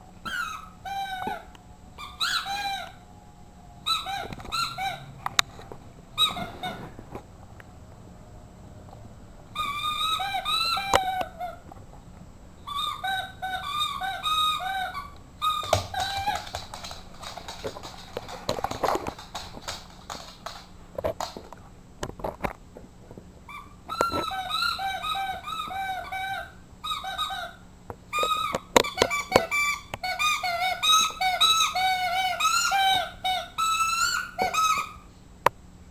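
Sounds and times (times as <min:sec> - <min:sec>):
squeaky rubber dog toy: 0:00.2 - 0:03.0, 0:03.8 - 0:05.1, 0:06.2 - 0:06.9, 0:09.5 - 0:11.6, 0:12.6 - 0:18.0, 0:23.5 - 0:35.1.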